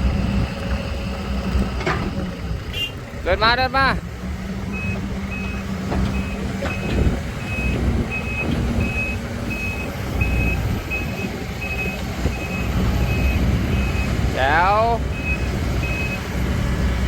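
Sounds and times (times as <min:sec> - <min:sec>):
diesel engine rumbling: 0:00.0 - 0:17.0
excavator travel alarm beeping: 0:04.7 - 0:16.4.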